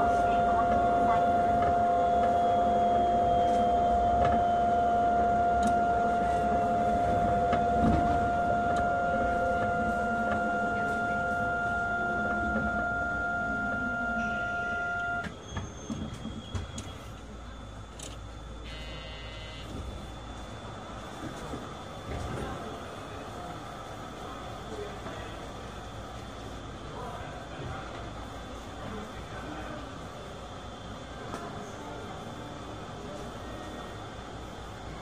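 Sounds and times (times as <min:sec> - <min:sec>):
high electrical tone: 0:00.0 - 0:15.3, 0:18.6 - 0:20.1
train drive motor whine: 0:00.0 - 0:35.0.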